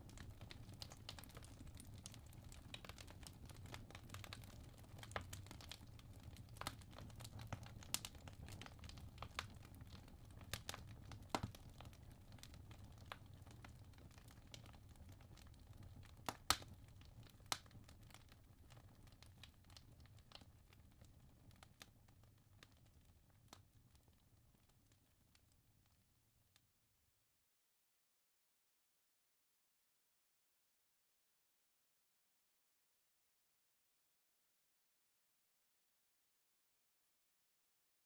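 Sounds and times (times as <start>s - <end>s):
low rumble of flame: 0.0s - 24.8s
fire crackling and popping: 0.0s - 25.9s.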